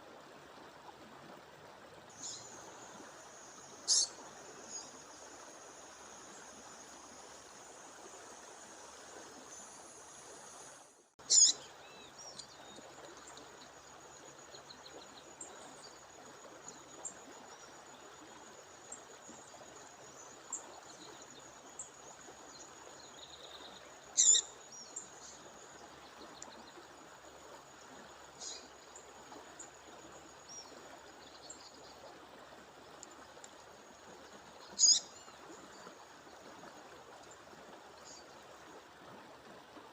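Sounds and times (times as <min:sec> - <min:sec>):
bird chirping: 0:11.3 - 0:12.5, 0:34.8 - 0:35.1.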